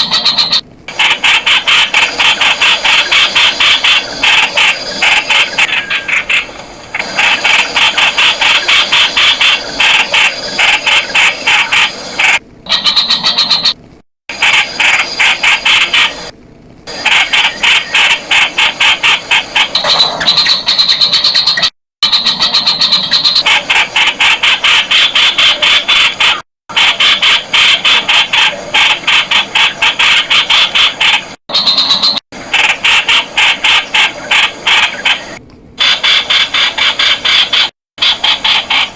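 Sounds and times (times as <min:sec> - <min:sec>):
bird calling rapid high notes: 0:00.0 - 0:00.6, 0:07.2 - 0:13.8, 0:19.6 - 0:23.7, 0:27.0 - 0:32.2.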